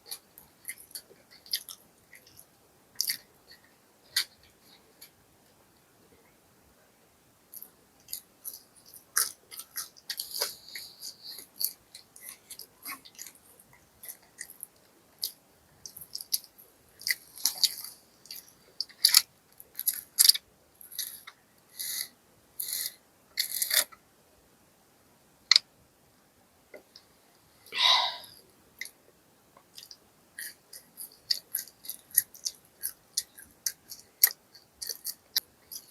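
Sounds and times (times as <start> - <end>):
person chewing crunchy food: 0.0 - 5.1, 7.5 - 23.9, 29.7 - 35.9
wet mouth clicks: 29.7 - 35.9.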